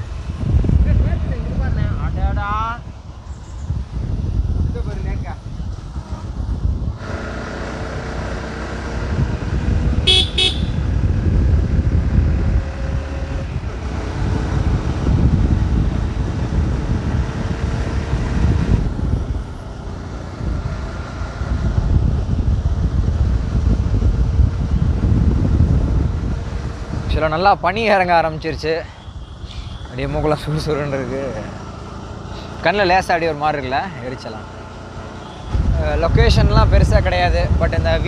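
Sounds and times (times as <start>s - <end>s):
motorcycle rumbling: 0.0s - 38.0s
vehicle horn toot: 10.0s - 10.9s, 28.9s - 30.0s, 35.2s - 35.8s.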